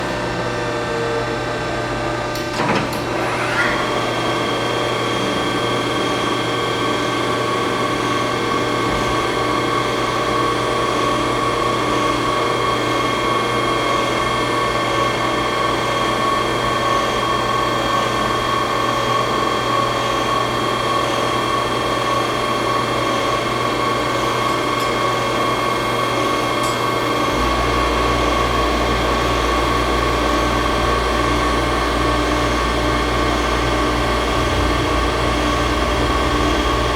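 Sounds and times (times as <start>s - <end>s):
milling machine whine: 0.0s - 36.9s
low hum: 27.3s - 36.9s.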